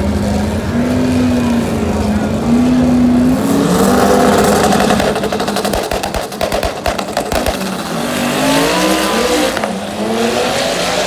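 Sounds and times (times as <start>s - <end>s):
race car engine revving: 0.0s - 11.0s
exhaust pops and bangs: 4.0s - 8.3s.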